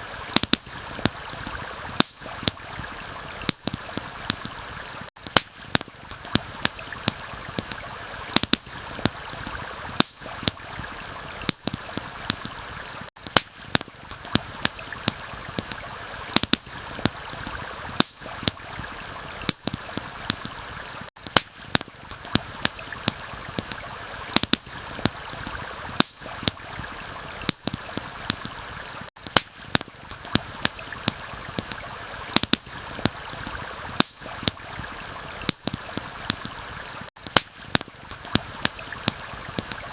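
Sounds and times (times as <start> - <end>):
campfire crackling and popping: 0.0 - 39.9
stream rushing: 0.0 - 39.9.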